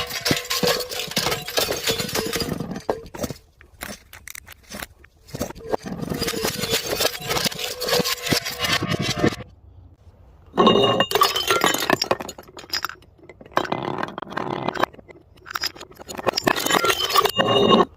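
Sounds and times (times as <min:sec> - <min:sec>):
glass bottles shattering: 0:00.0 - 0:03.4, 0:05.4 - 0:09.4, 0:10.6 - 0:13.7, 0:14.8 - 0:17.9.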